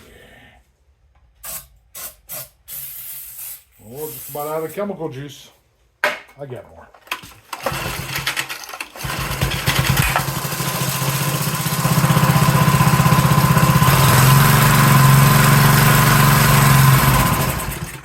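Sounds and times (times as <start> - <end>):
small engine running: 9.0 - 18.0.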